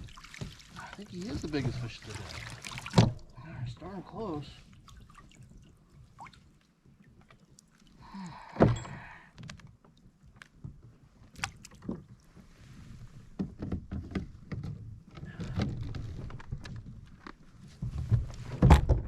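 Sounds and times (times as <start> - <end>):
knocks and bumps on a kayak: 0.0 - 3.3, 10.4 - 19.0.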